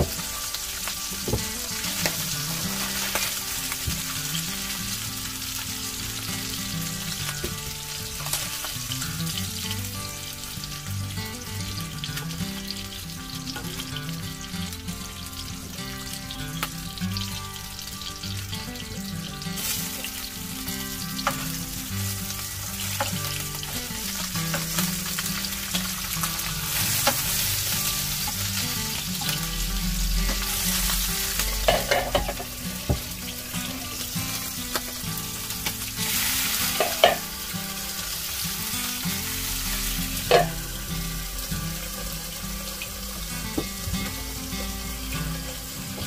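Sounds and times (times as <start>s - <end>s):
fish sizzling in a pan: 0.0s - 46.0s
utensil clicking in a pan: 22.8s - 29.5s.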